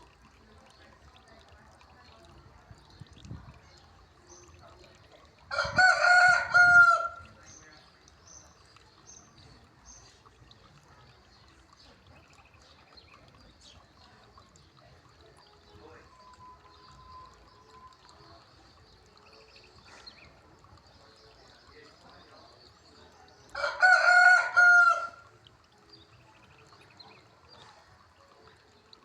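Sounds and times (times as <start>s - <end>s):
rooster crowing: 5.5s - 7.2s, 23.6s - 25.2s.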